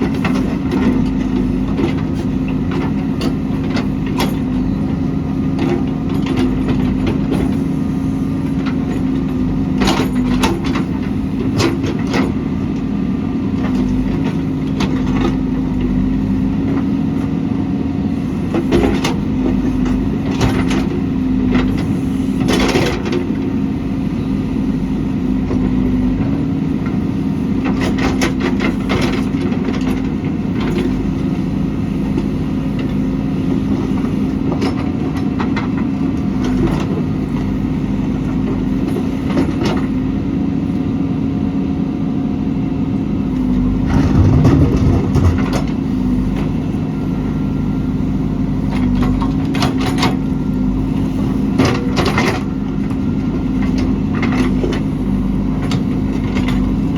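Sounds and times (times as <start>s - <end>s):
diesel engine running: 0.0s - 56.9s
sharp knocks and clatter: 43.8s - 45.8s.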